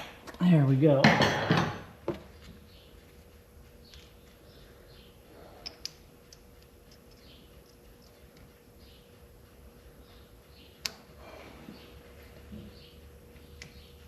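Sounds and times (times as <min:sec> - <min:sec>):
sharp clicks: 0:10.7 - 0:11.1.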